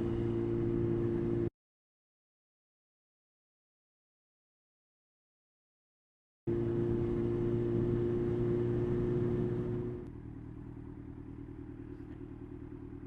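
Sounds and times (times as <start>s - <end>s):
motorcycle engine running: 6.5s - 13.0s.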